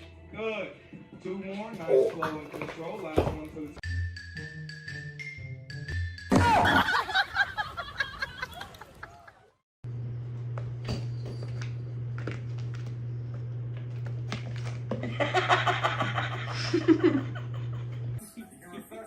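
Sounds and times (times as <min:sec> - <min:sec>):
people laughing: 0:06.3 - 0:09.6, 0:15.0 - 0:19.0
steady low hum: 0:09.9 - 0:18.2.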